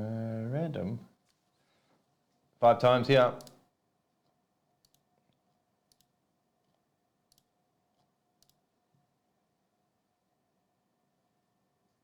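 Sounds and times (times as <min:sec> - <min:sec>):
faint computer mouse clicks: 0:04.8 - 0:05.1, 0:05.9 - 0:06.2, 0:07.3 - 0:08.6.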